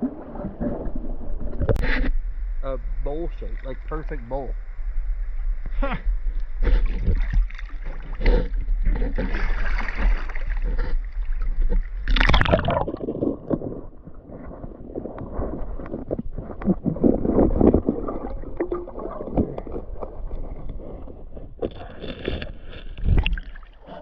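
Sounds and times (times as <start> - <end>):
creek water sloshing: 6.4 - 14.2, 16.3 - 24.0
water splash: 6.7 - 13.8, 17.0 - 20.5, 23.0 - 23.9.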